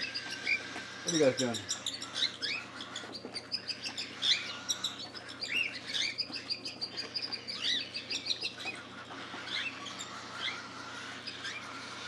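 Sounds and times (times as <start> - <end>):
cockatiels chirping: 0.0 - 12.0.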